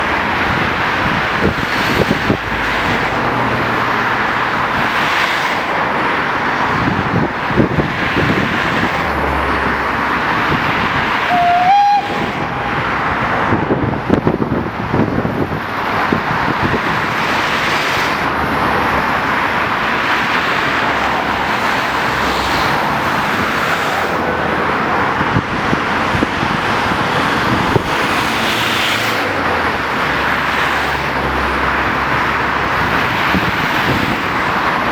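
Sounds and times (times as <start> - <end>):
heavy road traffic: 0.0 - 34.9
high horn toot: 11.2 - 13.0.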